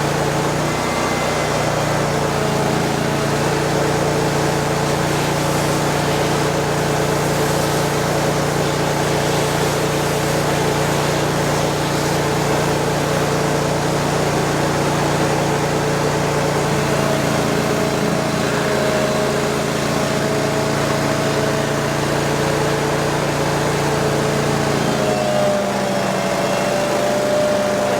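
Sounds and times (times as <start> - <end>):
vacuum excavator running: 0.0 - 27.9.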